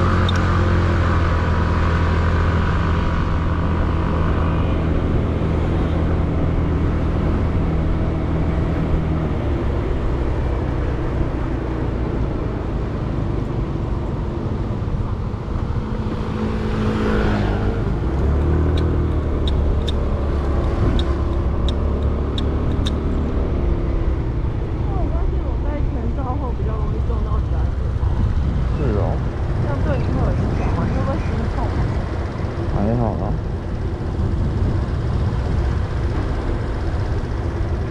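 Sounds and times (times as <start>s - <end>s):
muffled wind and road noise: 0.0s - 37.9s
motorcycle engine running: 15.1s - 37.9s
light ticks: 18.2s - 23.0s.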